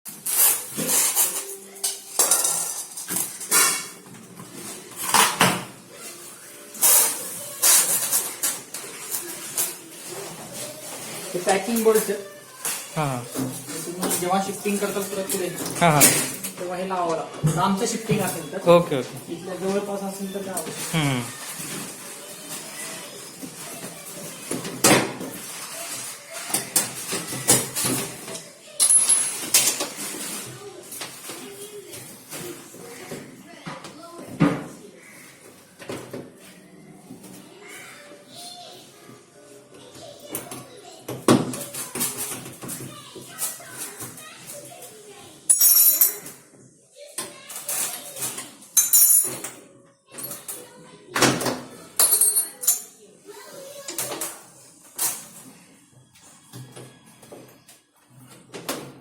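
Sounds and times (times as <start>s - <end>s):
faint voices: 5.8s - 24.5s.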